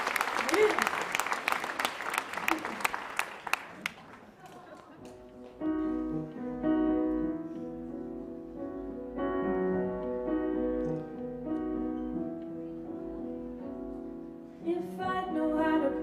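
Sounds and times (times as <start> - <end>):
piano held chords: 5.1 - 16.0.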